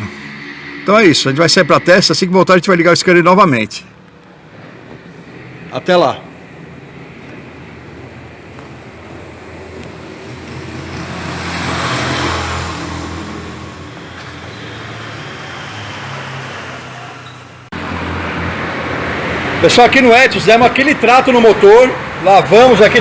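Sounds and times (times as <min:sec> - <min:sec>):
steady hum: 0:00.0 - 0:03.6
car engine and road noise: 0:00.0 - 0:23.0.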